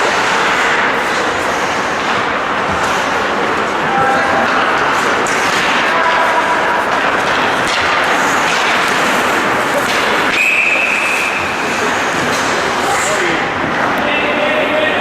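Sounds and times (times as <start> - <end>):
ice hockey rink noise: 0.0 - 15.0
referee's whistle: 10.3 - 11.5.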